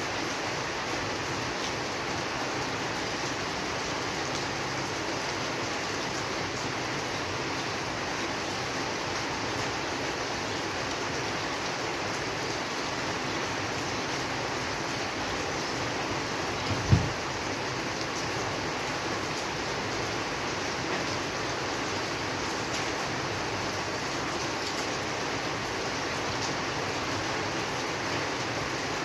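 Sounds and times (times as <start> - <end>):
steady rain falling: 0.0 - 29.0
low thump: 16.6 - 17.3.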